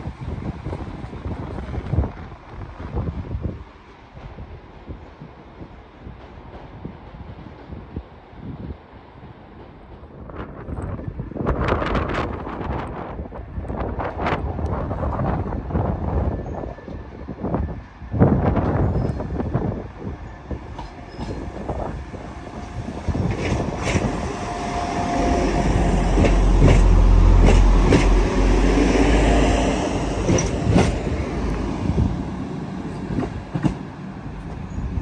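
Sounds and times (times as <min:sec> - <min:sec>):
deep train rumble: 0:00.0 - 0:35.0
train wheels clicking over joints: 0:23.1 - 0:28.8, 0:30.1 - 0:31.7, 0:32.9 - 0:34.8.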